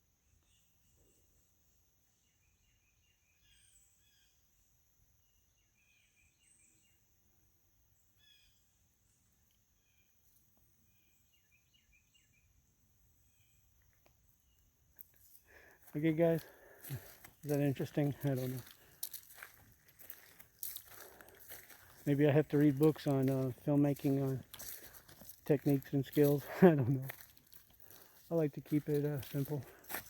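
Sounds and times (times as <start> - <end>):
small birds chirping: 8.0 - 30.0.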